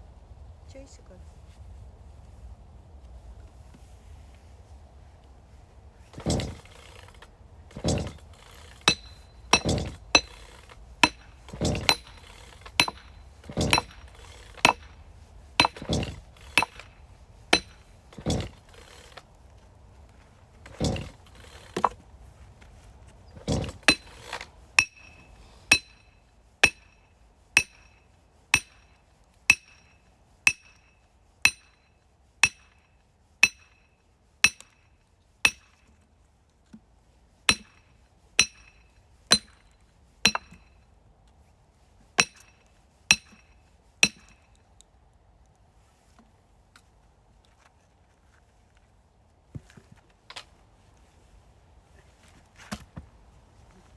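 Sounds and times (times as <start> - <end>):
hammer blows on metal: 7.8 - 15.0, 15.6 - 19.1, 23.4 - 34.9, 35.5 - 35.8, 37.5 - 39.7, 40.3 - 40.7, 42.2 - 44.4.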